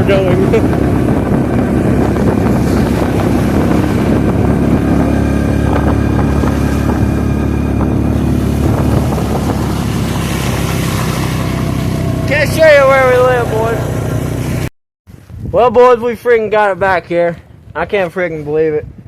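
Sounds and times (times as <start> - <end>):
quad engine running: 0.0 - 14.7.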